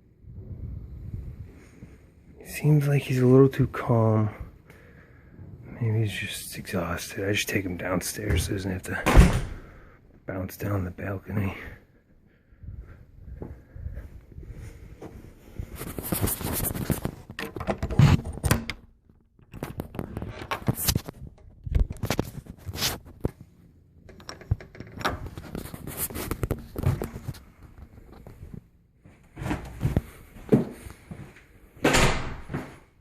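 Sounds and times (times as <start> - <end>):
footsteps: 12.8 - 17.3, 25.3 - 32.9.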